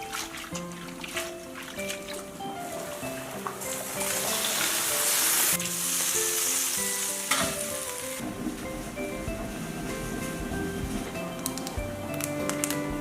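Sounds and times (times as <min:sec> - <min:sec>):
background music: 0:00.0 - 0:13.0
food sizzling in hot oil: 0:03.4 - 0:09.8.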